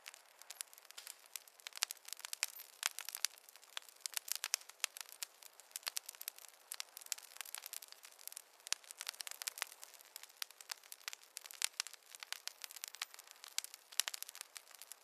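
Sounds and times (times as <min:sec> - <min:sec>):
faint hiss: 0:00.0 - 0:15.0
wood fire crackling and popping: 0:00.0 - 0:15.0.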